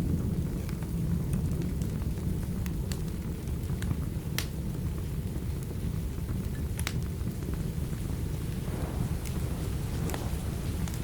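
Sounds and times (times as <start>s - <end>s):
steady rain: 0.0s - 11.0s
low rumble of thunder: 7.4s - 11.0s.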